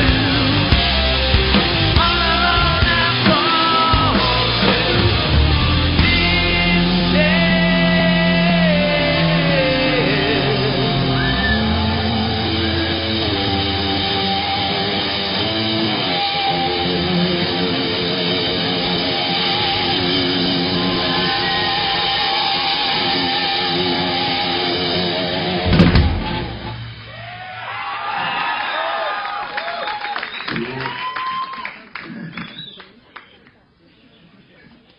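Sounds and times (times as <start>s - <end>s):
electric guitar melody: 0.0s - 27.2s
rock band playing live: 0.0s - 28.1s.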